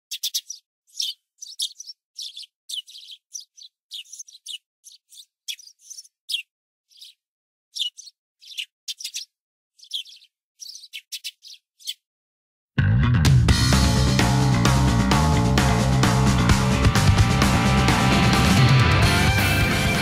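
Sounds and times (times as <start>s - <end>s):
small birds chirping: 0.0s - 12.1s.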